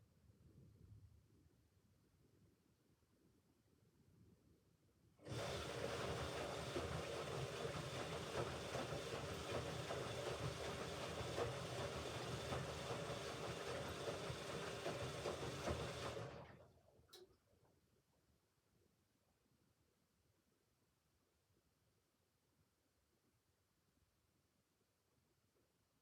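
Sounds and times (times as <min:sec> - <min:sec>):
washing machine running: 0:05.2 - 0:16.9
click: 0:17.1 - 0:17.4.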